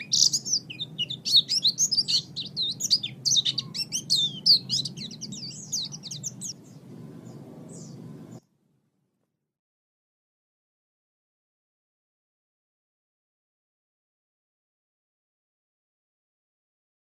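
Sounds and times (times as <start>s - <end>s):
songbird chirping and whistling: 0.0s - 8.4s
low steady hum: 0.0s - 9.2s.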